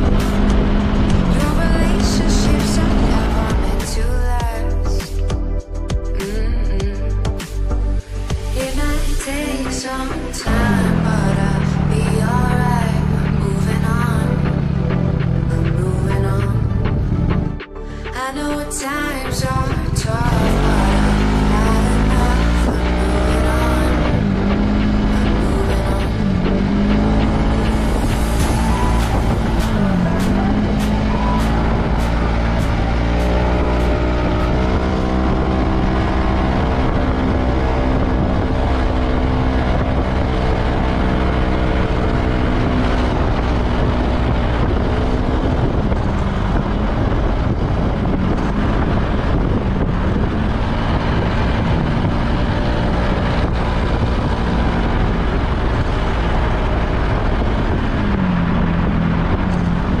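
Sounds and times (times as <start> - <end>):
scooter engine running: 19.4 - 60.0
wind noise: 24.1 - 60.0.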